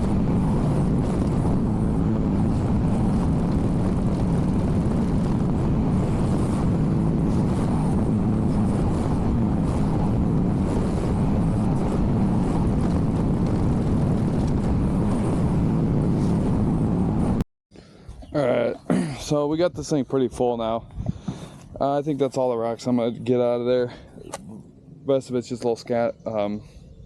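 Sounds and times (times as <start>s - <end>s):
excavator engine running: 0.0s - 17.4s.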